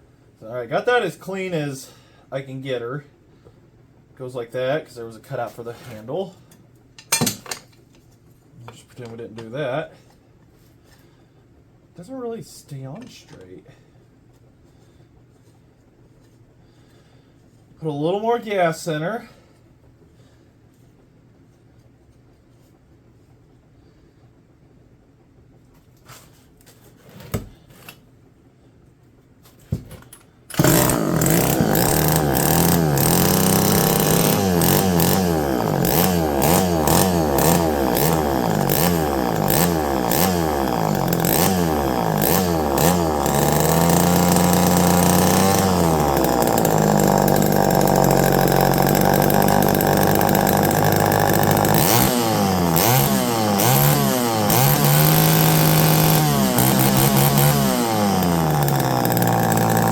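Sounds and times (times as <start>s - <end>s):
chainsaw engine revving: 30.5s - 59.9s.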